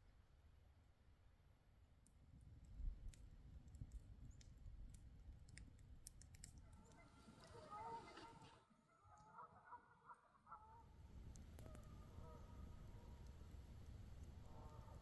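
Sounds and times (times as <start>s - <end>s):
faint scattered clicks: 2.0s - 8.6s, 11.0s - 15.0s
wavering bird calls: 6.8s - 10.8s.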